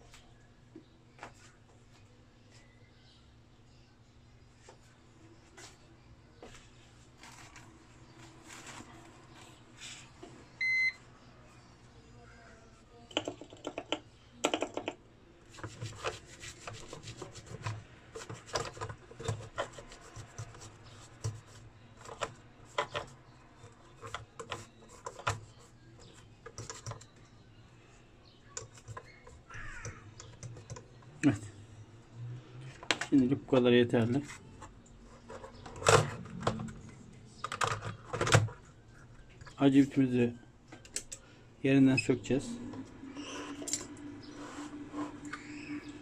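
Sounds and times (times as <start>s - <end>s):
faint steady hum: 0.0s - 28.8s
short electronic beep: 10.6s - 11.0s
clicks and scraping on circuit board: 15.5s - 27.2s.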